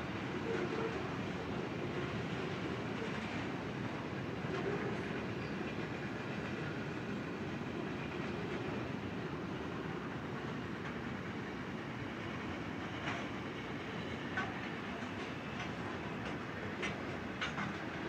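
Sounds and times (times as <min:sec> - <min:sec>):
freight wagons rolling on track: 0:12.4 - 0:18.0.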